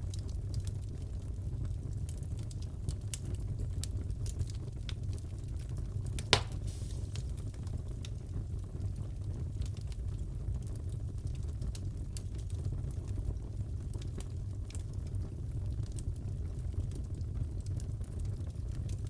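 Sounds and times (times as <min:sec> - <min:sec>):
fire rumbling: 0:00.0 - 0:19.0
wood crackles: 0:00.1 - 0:08.4
loud pop: 0:06.2 - 0:07.4.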